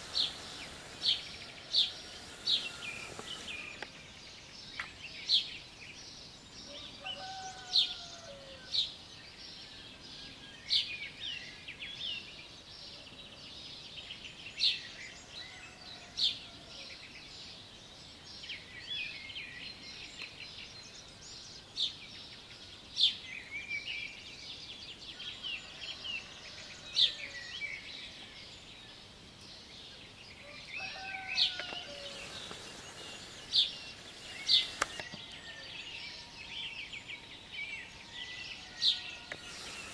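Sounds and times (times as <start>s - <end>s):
downward gliding bird calls: 0.0s - 3.9s, 30.8s - 36.4s, 38.9s - 39.9s
birds singing and chirping: 0.0s - 39.9s.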